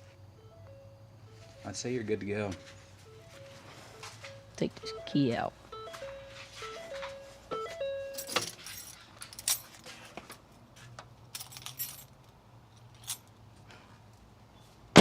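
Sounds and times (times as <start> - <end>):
car keys jangling: 8.0 - 9.9, 11.3 - 13.3.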